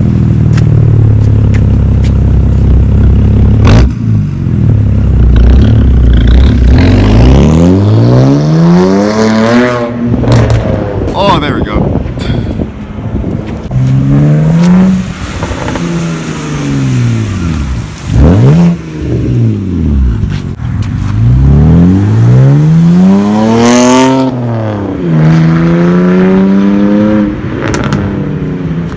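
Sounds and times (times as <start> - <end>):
car engine revving loudly: 5.1 - 10.9, 13.7 - 20.2, 21.2 - 28.2.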